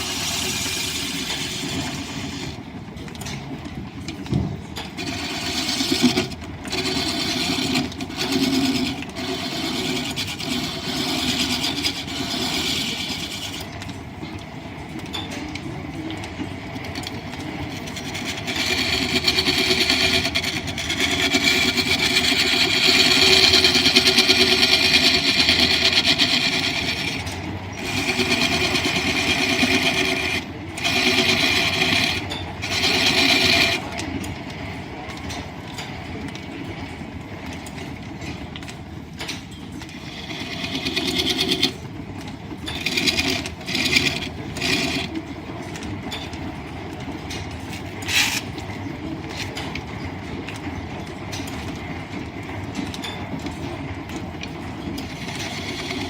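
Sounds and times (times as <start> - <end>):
turning tool cutting spinning wood: 0.0 - 2.7, 4.8 - 13.8, 17.0 - 34.1, 39.8 - 45.4, 47.6 - 49.7, 55.0 - 56.0
line shaft and belts running: 0.0 - 56.0.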